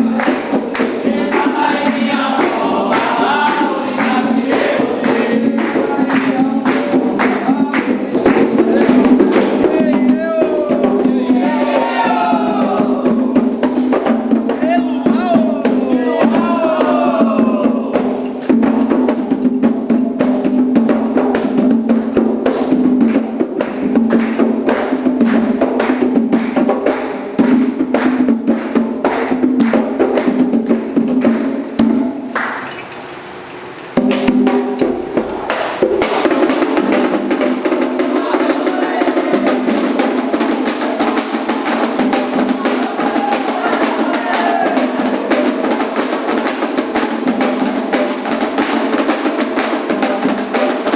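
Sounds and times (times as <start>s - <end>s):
voices singing: 0.0s - 18.6s, 34.0s - 46.6s
hand drums drumming: 0.0s - 32.4s, 34.0s - 50.9s.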